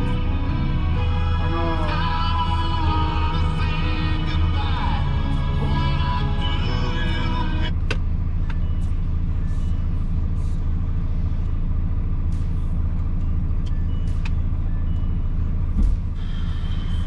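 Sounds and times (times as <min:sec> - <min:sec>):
diesel engine drone: 0:00.0 - 0:17.0
short low thump: 0:15.8 - 0:16.2.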